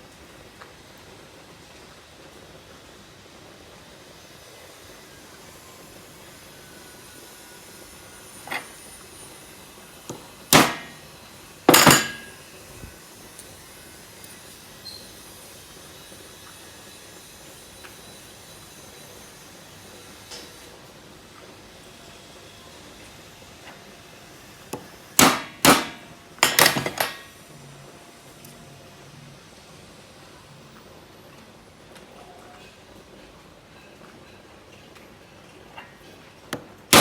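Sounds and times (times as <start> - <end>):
hard objects knocking and clicking: 11.7 - 12.3, 25.2 - 27.2.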